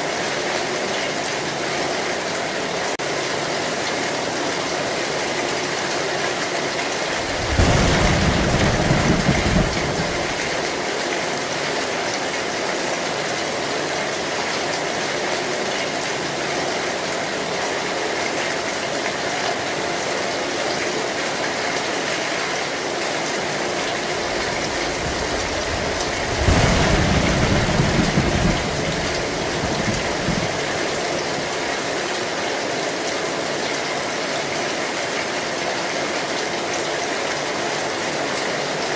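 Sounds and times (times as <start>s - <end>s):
heavy rain on a metal roof: 0.0s - 38.9s
low rumbles of thunder: 7.1s - 10.8s, 23.8s - 31.6s.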